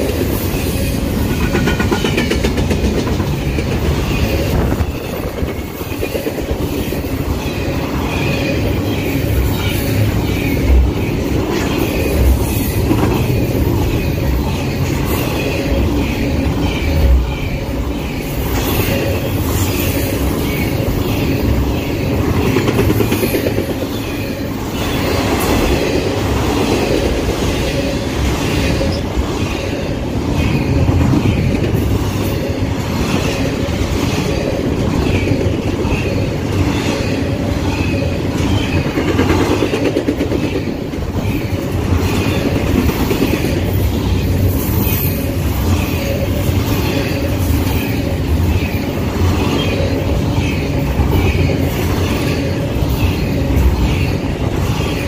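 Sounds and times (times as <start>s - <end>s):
train wheels rumbling on rails: 0.0s - 55.0s
wheels clicking over rail joints: 1.2s - 6.5s.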